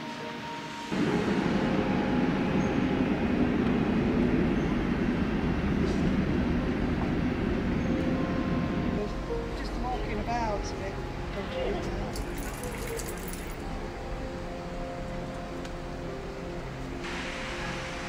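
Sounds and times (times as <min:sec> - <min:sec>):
train wheels rumbling on track: 0:00.9 - 0:13.9.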